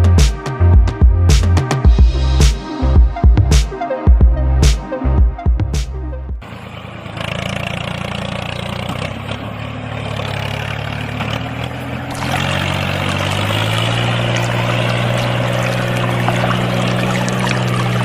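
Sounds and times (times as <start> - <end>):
small water pump motor humming: 12.1 - 18.0
water pouring and splashing: 12.1 - 18.0.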